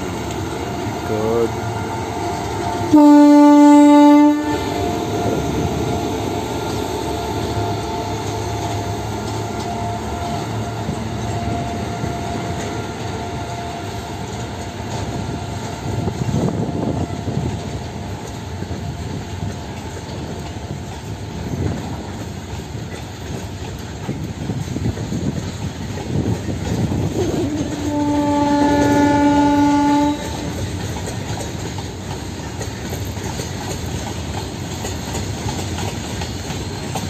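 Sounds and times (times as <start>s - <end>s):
train wheels clickety-clack: 0.0s - 37.0s
locomotive horn blast: 0.7s - 5.6s, 27.2s - 30.6s.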